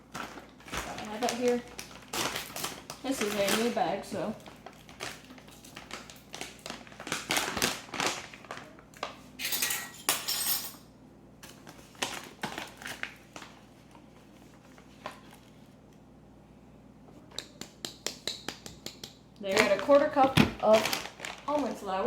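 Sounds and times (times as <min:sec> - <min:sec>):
plastic bag crinkling: 0:00.0 - 0:09.2, 0:11.5 - 0:15.6, 0:19.5 - 0:22.0.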